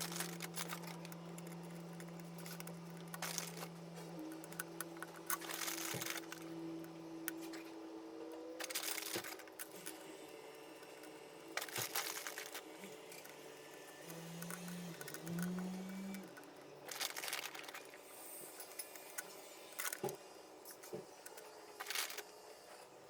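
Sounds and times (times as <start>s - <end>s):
crunching and rustling: 0.0s - 7.7s, 8.6s - 18.2s.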